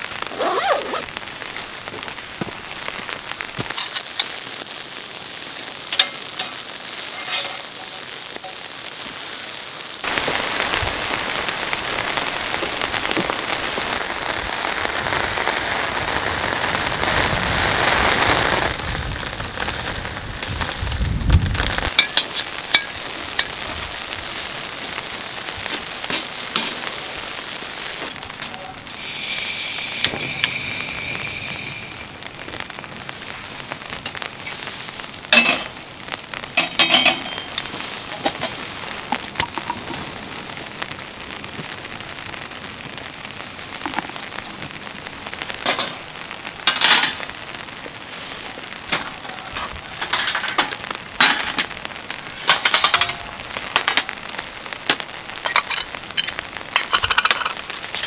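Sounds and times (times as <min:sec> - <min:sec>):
rain falling on a tent: 0:00.0 - 0:58.0
wind rumble on microphone: 0:13.6 - 0:22.0.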